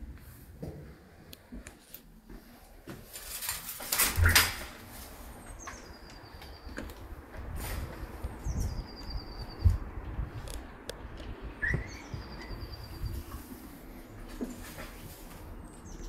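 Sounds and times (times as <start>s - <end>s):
low wind rumble: 3.9s - 16.0s
bird calling: 11.6s - 13.1s.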